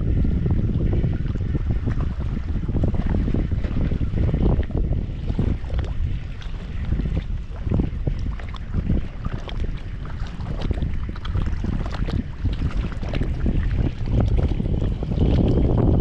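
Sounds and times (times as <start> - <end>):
choppy water lapping: 0.0 - 16.0
wind buffeting microphone: 0.0 - 16.0.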